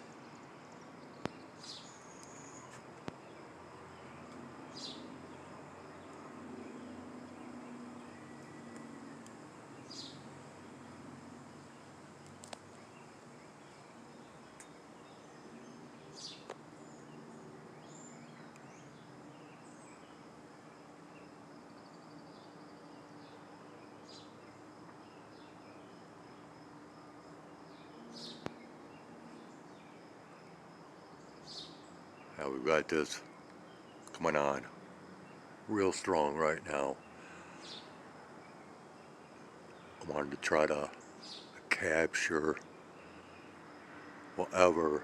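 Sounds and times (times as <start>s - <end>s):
soft clicks: 12.2s - 12.8s.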